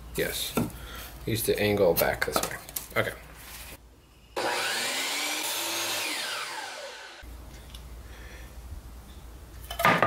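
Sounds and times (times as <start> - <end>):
miter saw blade spinning down: 4.4 - 7.2.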